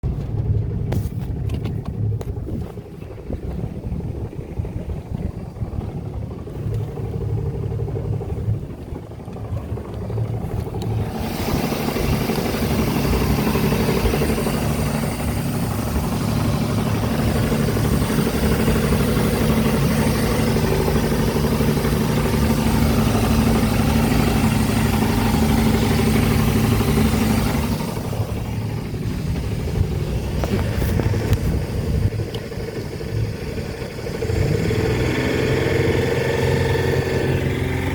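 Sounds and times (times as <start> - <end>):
boat engine knocking: 0.0 - 37.9.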